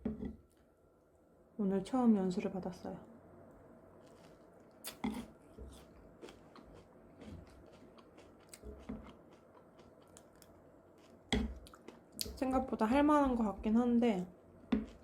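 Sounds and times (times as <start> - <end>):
chewing: 4.0 - 12.4.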